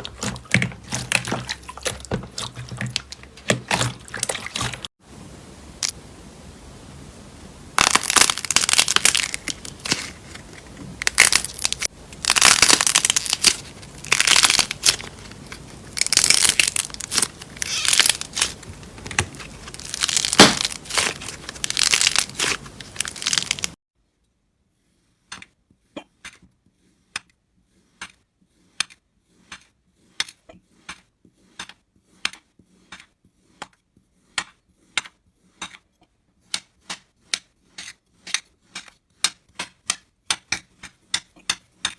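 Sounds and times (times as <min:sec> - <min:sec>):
crunchy slime crackling: 0:00.0 - 0:04.9, 0:07.8 - 0:23.8.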